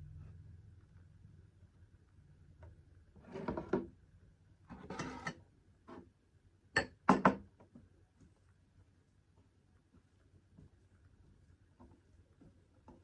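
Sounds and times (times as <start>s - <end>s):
utensil scraping a plate: 3.2s - 3.8s, 4.7s - 6.0s.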